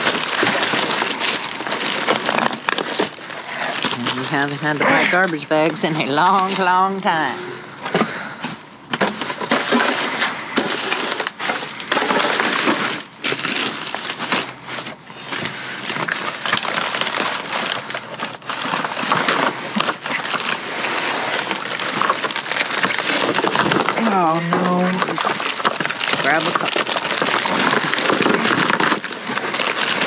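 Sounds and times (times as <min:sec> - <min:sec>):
plastic bags crinkling: 0:00.0 - 0:30.0.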